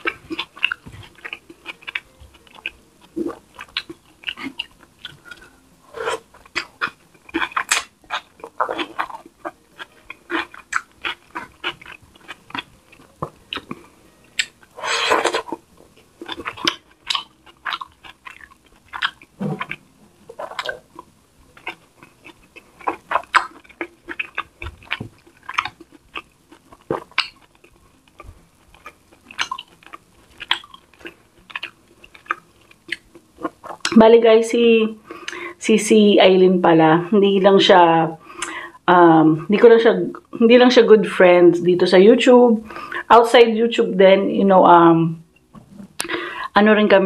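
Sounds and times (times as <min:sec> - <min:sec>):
lip smacks and mouth clicks: 0:00.0 - 0:34.0, 0:35.0 - 0:35.4, 0:38.4 - 0:38.6, 0:45.4 - 0:46.3
wet chewing: 0:00.0 - 0:35.6.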